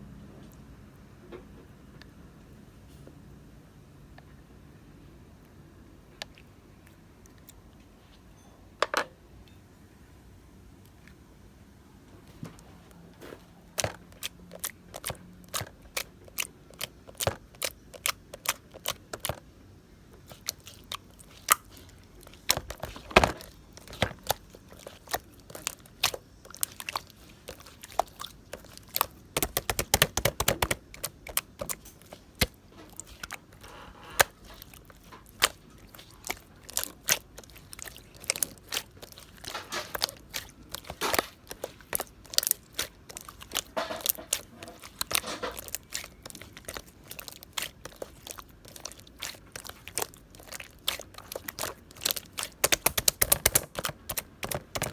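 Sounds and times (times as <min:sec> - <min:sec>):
slime squeezed by hand: 0:20.2 - 0:54.9
air bubbles popping in slime: 0:22.4 - 0:33.2, 0:34.6 - 0:54.9.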